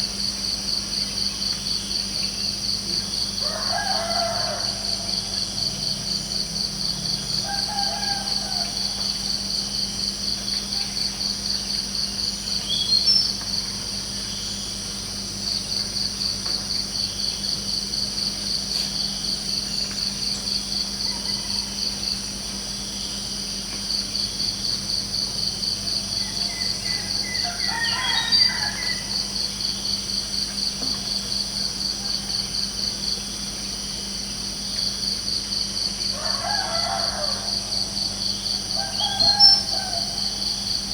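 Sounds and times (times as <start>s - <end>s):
crickets chirping: 0.0s - 40.9s
faint rooster crowing: 3.3s - 6.0s, 7.1s - 9.6s, 21.0s - 22.2s, 25.8s - 29.7s, 31.7s - 33.1s, 36.0s - 40.9s.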